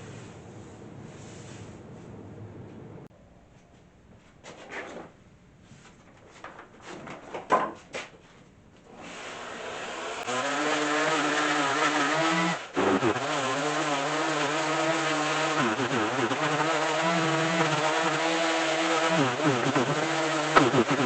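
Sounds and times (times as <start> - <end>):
electric power sander running: 9.2 - 21.0.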